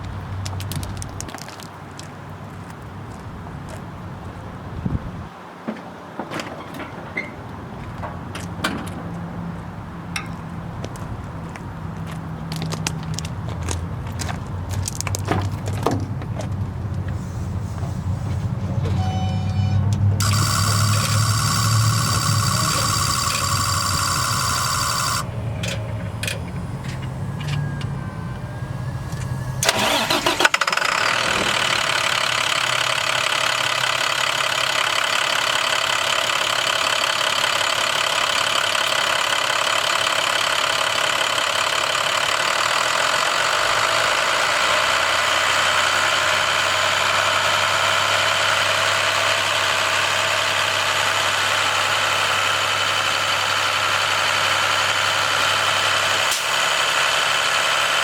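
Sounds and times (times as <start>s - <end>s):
diesel engine cranking and idling: 0.0s - 5.4s, 6.0s - 58.0s.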